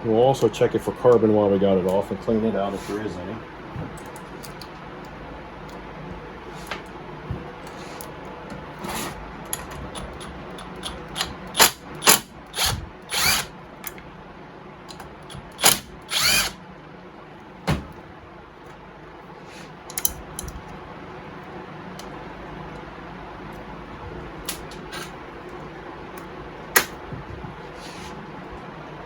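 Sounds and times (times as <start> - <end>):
power driver whirring: 10.8 - 13.5, 15.2 - 16.6.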